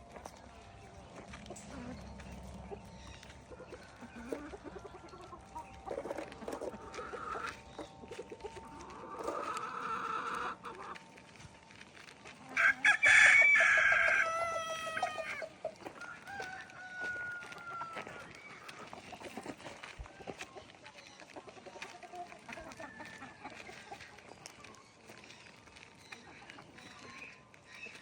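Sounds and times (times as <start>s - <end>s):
chickens clucking: 0.0s - 28.0s
rooster crowing: 12.6s - 15.4s, 16.0s - 18.3s.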